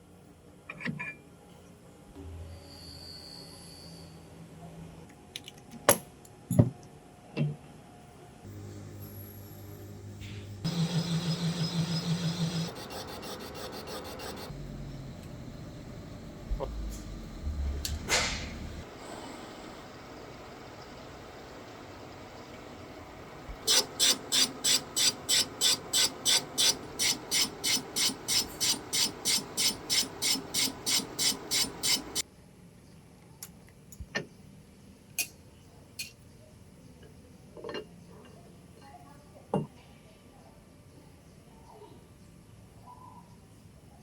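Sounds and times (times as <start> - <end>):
lathe humming: 8.5 - 32.2
lathe tool scraping strikes: 23.7 - 32.2.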